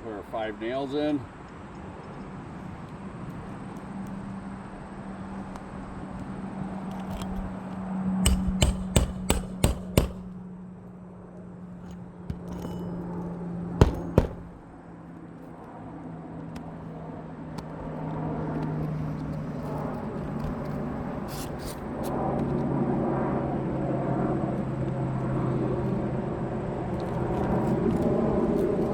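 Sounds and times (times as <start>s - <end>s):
hammer driving nails: 8.2s - 10.4s, 13.8s - 14.6s.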